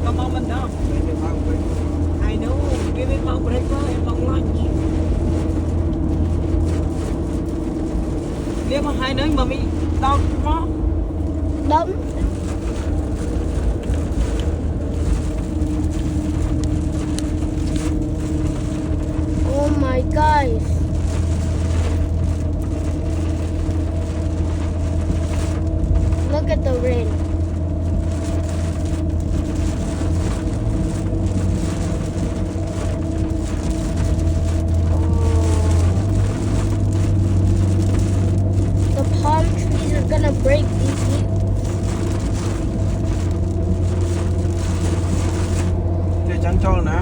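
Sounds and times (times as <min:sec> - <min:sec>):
car engine and tyre rumble: 0:00.0 - 0:47.0
constant hum: 0:00.0 - 0:47.0
rain hiss on wet road: 0:00.0 - 0:47.0.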